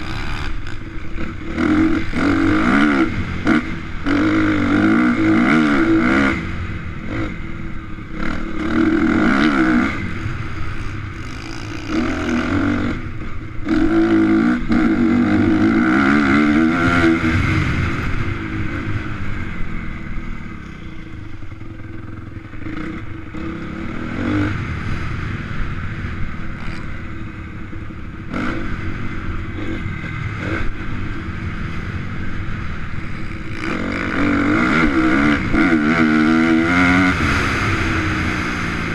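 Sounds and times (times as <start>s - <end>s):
motocross engine revving: 0.0s - 21.0s, 22.1s - 25.5s, 32.4s - 38.9s.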